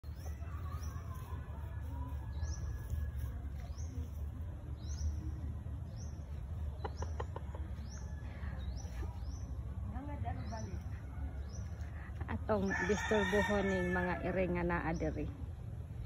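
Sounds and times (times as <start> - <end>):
birds chirping: 0.0 - 16.0
steady low rumble: 14.1 - 16.0.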